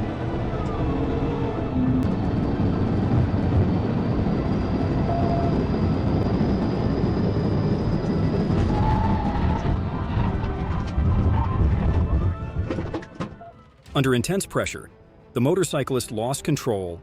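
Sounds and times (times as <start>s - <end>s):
vehicle road and wind noise: 0.0s - 13.4s.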